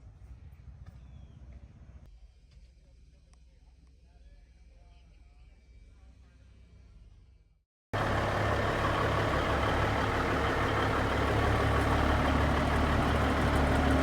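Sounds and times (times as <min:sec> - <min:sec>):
diesel truck engine running: 0:08.0 - 0:14.0.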